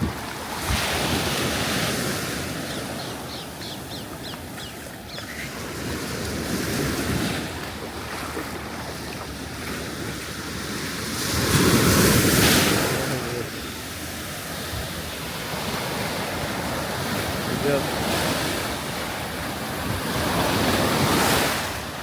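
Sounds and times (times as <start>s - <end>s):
wind on the microphone: 0.0s - 3.1s
surf breaking on a beach: 0.0s - 22.0s.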